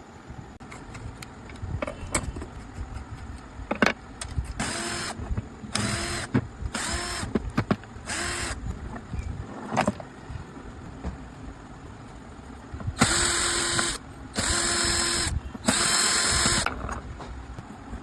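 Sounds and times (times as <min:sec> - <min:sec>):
angle grinder motor whining: 0:13.0 - 0:16.7.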